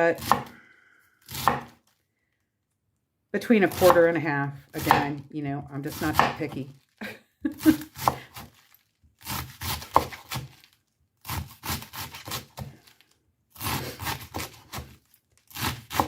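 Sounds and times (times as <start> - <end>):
knife slicing cabbage: 0.0 - 0.6, 1.2 - 1.8, 3.6 - 4.2, 4.8 - 5.2, 5.8 - 6.6, 7.5 - 16.0.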